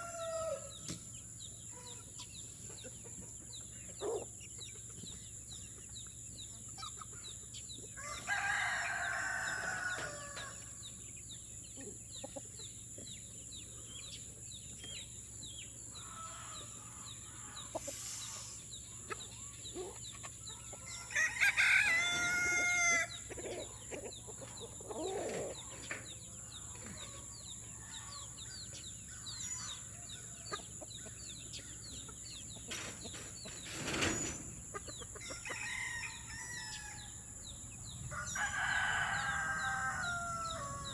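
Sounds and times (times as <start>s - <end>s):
roosters crowing: 0.0s - 2.1s, 7.8s - 11.1s, 15.8s - 40.9s
hens clucking softly: 17.4s - 20.9s, 22.2s - 27.4s.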